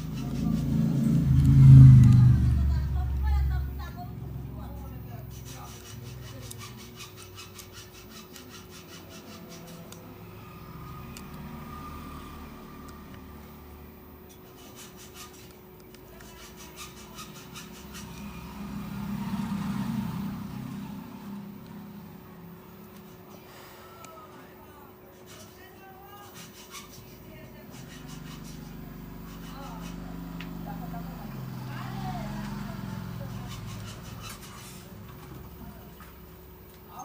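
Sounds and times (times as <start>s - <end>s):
hand tool scraping phone frame: 0.0s - 1.8s, 4.8s - 13.2s, 14.3s - 19.2s, 25.1s - 30.5s, 32.3s - 36.1s
low rumble: 0.3s - 4.8s.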